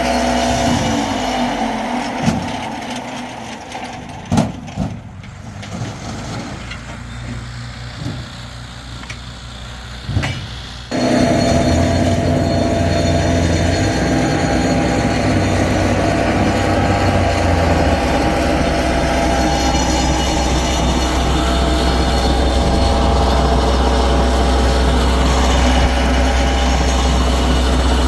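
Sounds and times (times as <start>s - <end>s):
motor hum: 10.9s - 28.0s.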